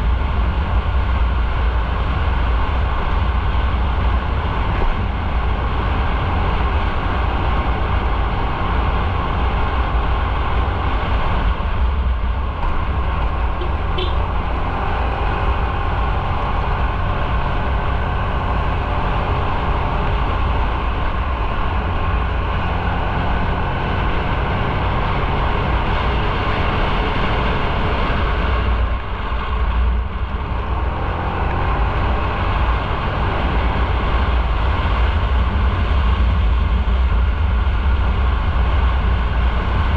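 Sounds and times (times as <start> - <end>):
motorcycle engine: 0.0 - 39.9
wind noise: 0.0 - 39.9.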